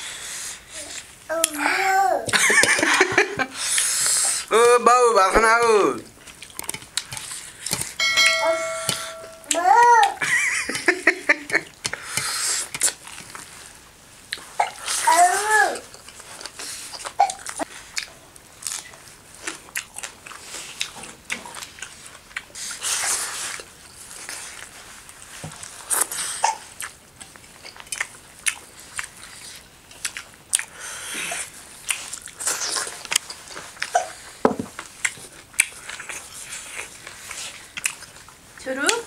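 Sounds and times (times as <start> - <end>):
chewing and smacking: 6.1 - 8.0, 15.8 - 39.0.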